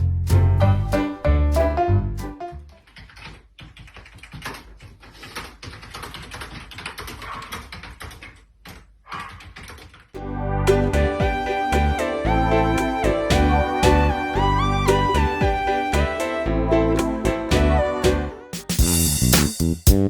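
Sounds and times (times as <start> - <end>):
background music: 0.2 - 2.7, 10.2 - 20.0
keyboard clicking and tapping: 2.8 - 10.1.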